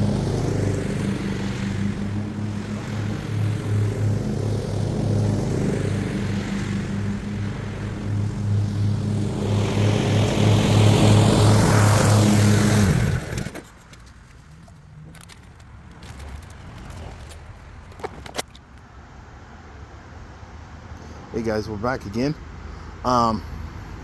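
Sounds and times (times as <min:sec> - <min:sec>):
lawnmower engine running: 0:00.0 - 0:18.8.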